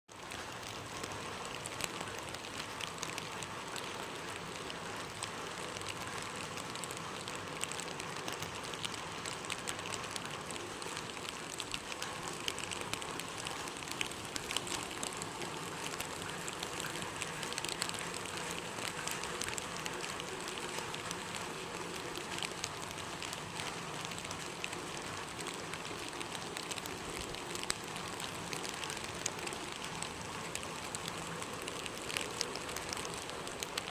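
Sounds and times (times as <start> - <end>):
steady rain patter: 0.1 - 33.9.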